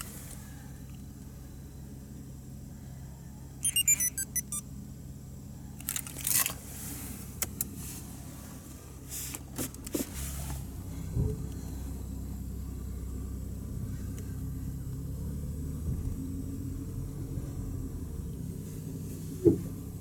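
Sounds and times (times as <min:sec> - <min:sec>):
short electronic beeps: 0:03.6 - 0:04.6
car engine idling: 0:04.7 - 0:20.0.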